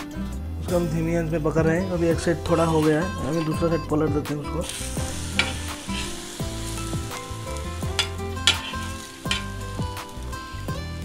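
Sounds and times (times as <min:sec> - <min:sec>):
sandwich sizzling in a pan: 0:04.6 - 0:11.0.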